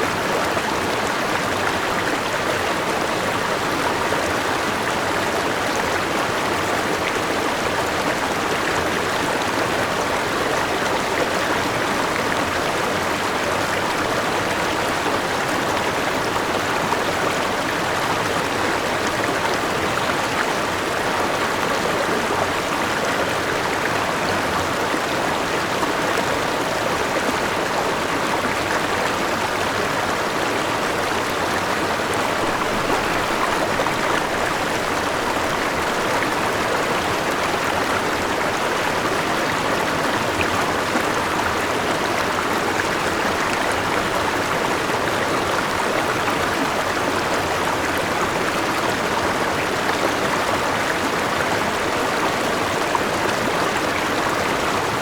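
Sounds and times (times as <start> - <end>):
river rushing over rocks: 0.0 - 55.0.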